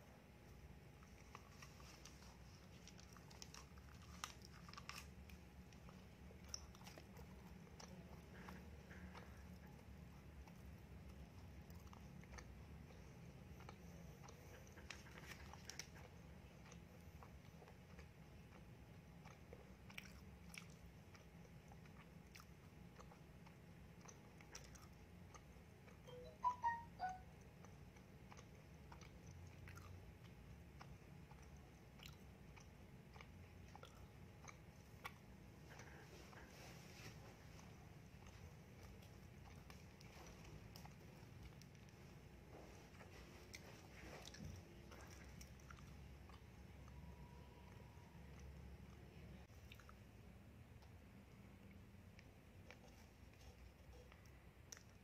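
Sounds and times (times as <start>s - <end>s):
chewing with mouth clicks: 0.2s - 55.0s
short chirps: 26.1s - 27.3s.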